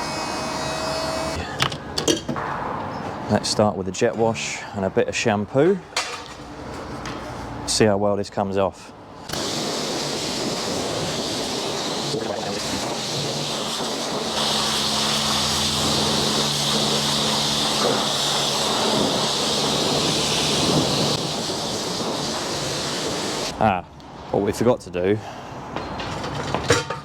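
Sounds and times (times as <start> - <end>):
pressure washer spraying water: 9.3 - 23.5.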